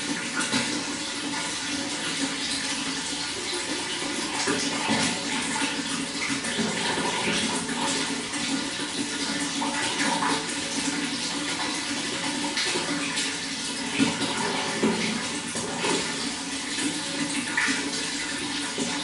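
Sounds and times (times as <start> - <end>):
water running: 0.0 - 19.0.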